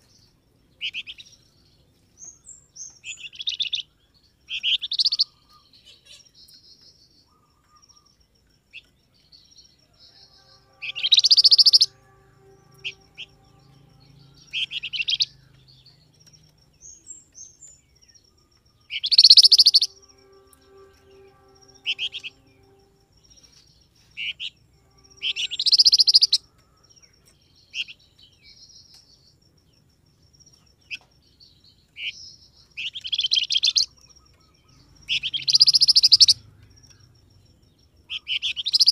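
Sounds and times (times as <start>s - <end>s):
songbird chirping: 0.0s - 38.9s
soft bird twitters: 18.9s - 20.5s, 32.8s - 36.9s.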